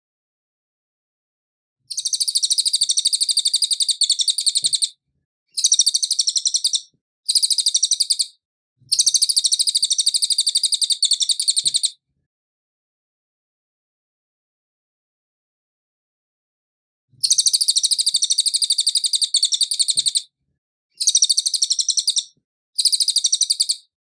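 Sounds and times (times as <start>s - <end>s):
songbird trilling: 1.9s - 4.9s, 5.5s - 8.3s, 8.9s - 11.9s, 17.2s - 20.2s, 21.0s - 23.9s.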